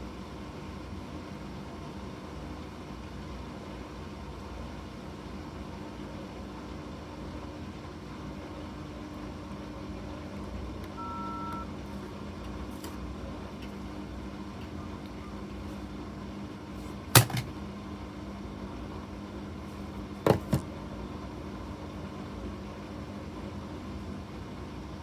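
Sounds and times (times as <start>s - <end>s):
washing machine humming: 0.0s - 25.0s.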